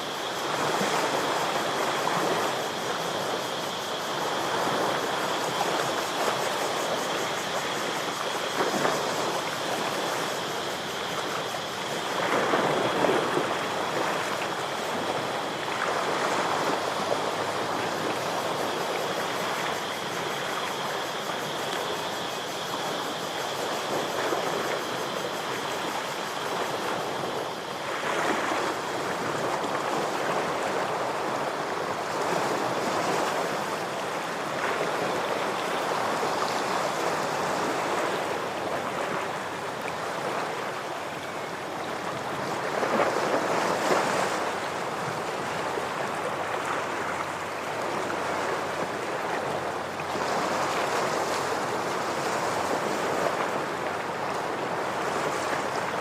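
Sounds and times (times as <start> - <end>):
ocean waves washing against rocks: 23.6 - 56.0.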